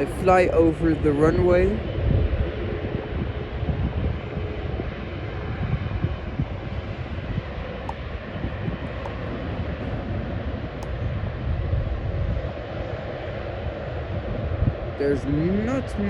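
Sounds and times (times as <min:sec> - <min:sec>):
jet engines rumbling: 0:00.0 - 0:16.0
wind buffeting microphone: 0:00.0 - 0:16.0.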